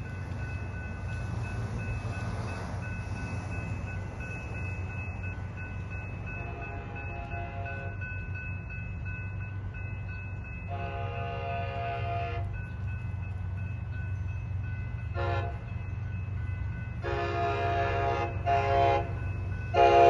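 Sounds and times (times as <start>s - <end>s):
diesel train rumble: 0.0s - 20.0s
train horn blasts: 6.4s - 8.0s, 10.7s - 12.5s, 15.1s - 15.7s, 17.0s - 20.0s.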